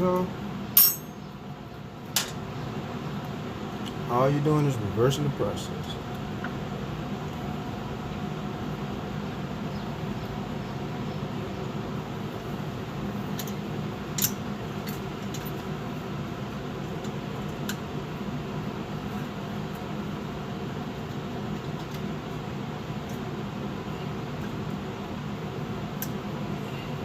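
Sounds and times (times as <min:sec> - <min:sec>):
steady mechanical hum: 0:00.0 - 0:27.0
metal hardware clinking: 0:00.8 - 0:01.2.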